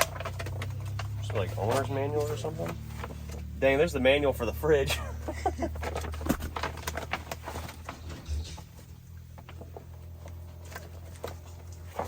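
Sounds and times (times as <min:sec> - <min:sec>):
papers rustling and items clicking: 0:00.0 - 0:03.6, 0:05.5 - 0:12.0.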